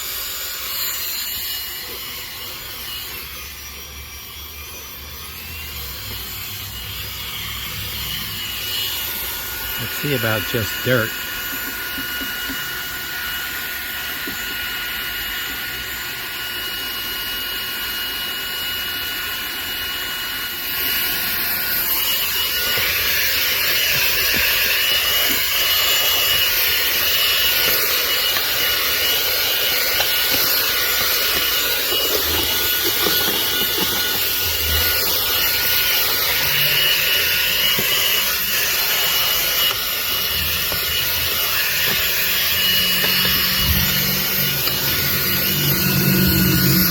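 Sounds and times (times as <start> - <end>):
handheld vacuum motor whine: 0.0 - 46.9
vacuum nozzle scraping: 20.8 - 46.9.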